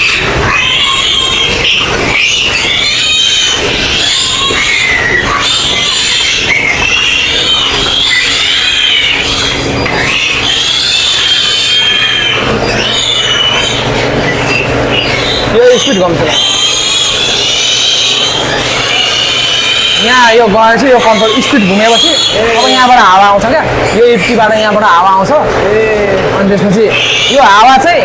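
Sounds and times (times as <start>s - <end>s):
piglets squealing: 0.0s - 28.0s
ventilation fan hum: 0.0s - 28.0s.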